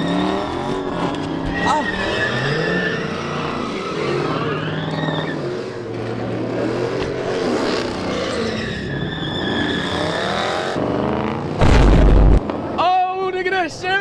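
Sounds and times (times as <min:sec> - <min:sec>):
tires squealing: 0:00.0 - 0:11.4
car engines revving: 0:00.0 - 0:12.8.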